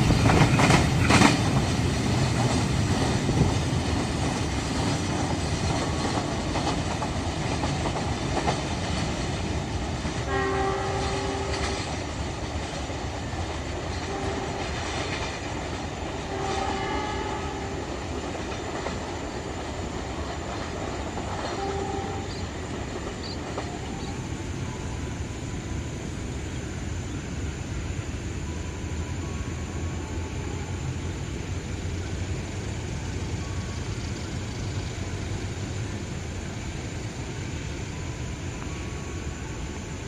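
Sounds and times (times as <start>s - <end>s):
train carriages rumbling on track: 0.0s - 40.0s
train horn: 10.2s - 12.0s, 13.9s - 15.4s, 16.2s - 18.2s, 21.3s - 24.9s.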